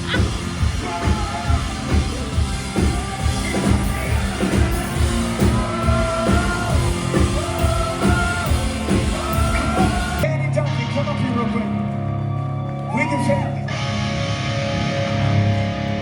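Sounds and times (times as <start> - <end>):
live rock band playing: 0.0 - 10.2, 13.7 - 16.0
singer holding long notes: 0.0 - 10.3
steady drum beat: 0.0 - 10.3.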